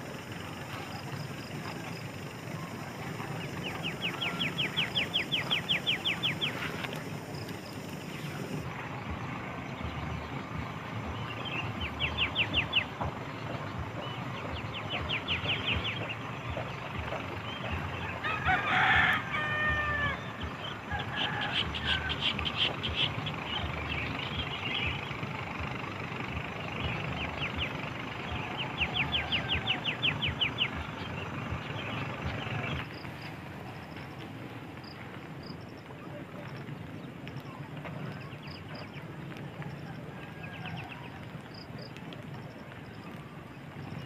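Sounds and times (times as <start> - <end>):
steady outdoor hum: 0.0 - 44.0
rooster crowing: 3.7 - 6.6, 18.0 - 22.6, 28.3 - 30.8, 39.6 - 41.4.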